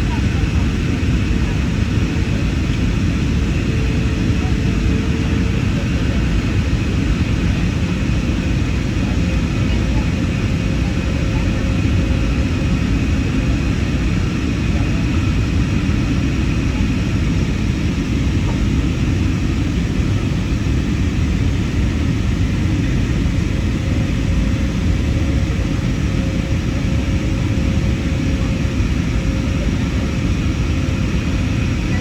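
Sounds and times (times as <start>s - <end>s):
airplane cabin rumble: 0.0s - 32.0s.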